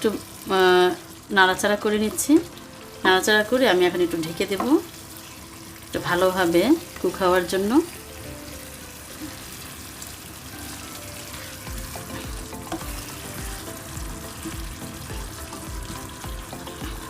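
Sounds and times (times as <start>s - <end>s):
meat sizzling in a pan: 0.0s - 17.0s
stirring knocks: 11.3s - 17.0s.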